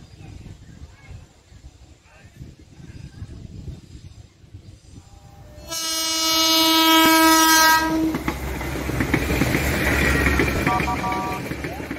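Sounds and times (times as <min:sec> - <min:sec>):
train passing with rumble: 0:00.0 - 0:11.9
train horn blast: 0:05.4 - 0:08.2, 0:10.7 - 0:11.5
train wheels clicking on rail joints: 0:07.0 - 0:11.9.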